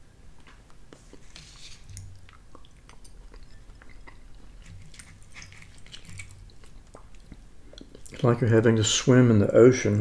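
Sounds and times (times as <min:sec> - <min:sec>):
person chewing food: 0:00.3 - 0:08.3.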